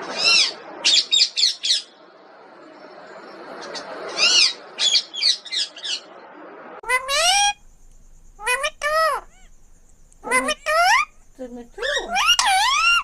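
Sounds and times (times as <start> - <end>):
parrot squawking and chirping: 4.1 - 6.1, 6.8 - 13.0.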